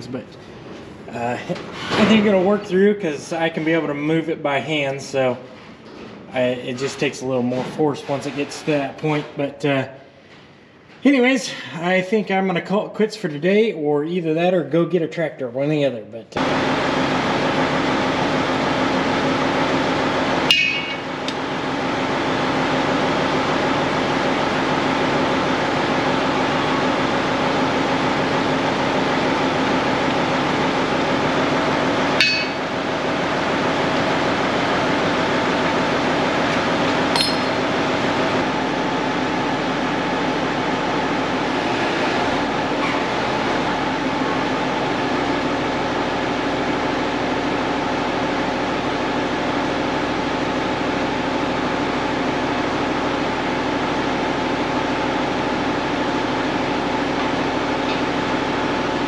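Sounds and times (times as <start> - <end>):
sharp metallic clanks: 20.5 - 21.1, 32.2 - 32.7, 37.1 - 37.7.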